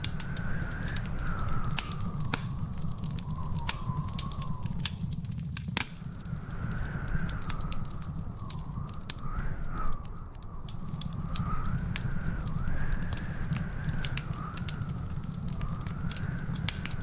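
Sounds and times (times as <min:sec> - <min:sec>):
wood fire crackling: 0:00.0 - 0:17.0
faint wavering whistle: 0:02.8 - 0:04.8.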